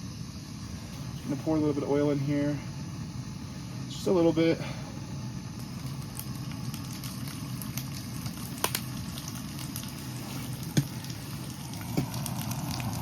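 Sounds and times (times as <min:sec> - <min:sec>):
steady low hum: 0:00.0 - 0:13.0
vegetables sizzling in oil: 0:05.2 - 0:13.0.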